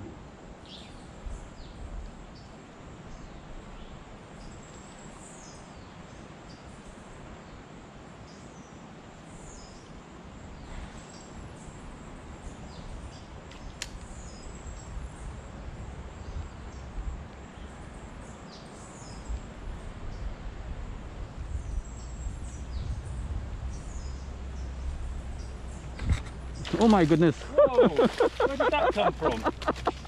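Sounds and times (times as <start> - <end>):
outdoor background hiss: 0.0 - 30.0
small birds chirping: 21.5 - 30.0.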